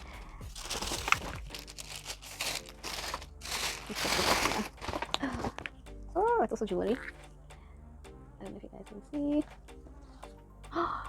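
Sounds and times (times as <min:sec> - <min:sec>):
gift packaging crinkling: 0:00.0 - 0:05.8.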